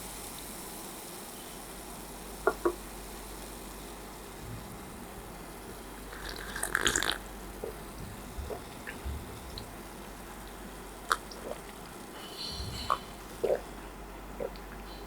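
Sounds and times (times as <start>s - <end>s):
wet chewing and mouth noises: 6.1s - 15.0s.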